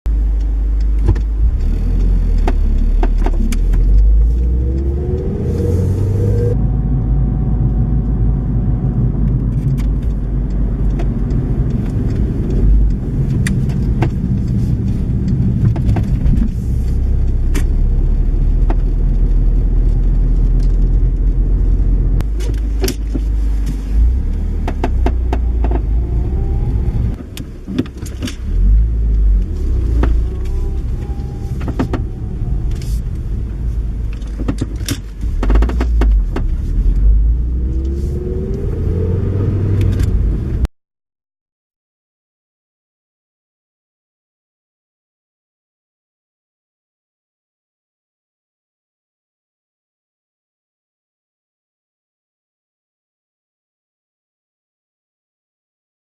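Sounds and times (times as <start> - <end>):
road and engine rumble: 0.0 - 40.7
suspension clunks and knocks: 0.8 - 4.6, 9.5 - 16.6, 22.2 - 26.0, 27.0 - 37.0.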